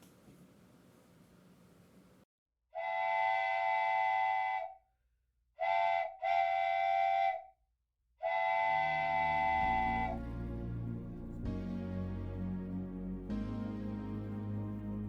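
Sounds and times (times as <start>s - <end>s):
train whistle blasts: 2.8s - 4.8s, 5.6s - 7.5s, 8.2s - 10.5s
music: 9.4s - 15.0s.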